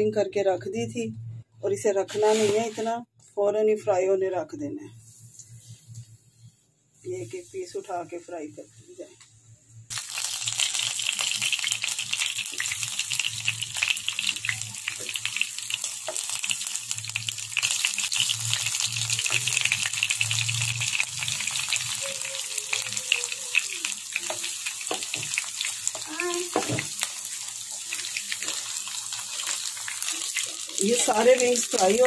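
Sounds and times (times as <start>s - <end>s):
chicken sizzling in hot oil: 9.9s - 32.0s.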